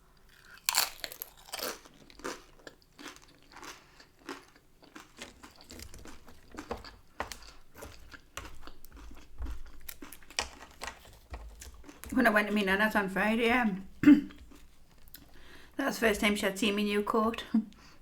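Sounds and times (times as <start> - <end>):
person chewing crunchy chips: 0.0 - 12.6, 13.9 - 15.6.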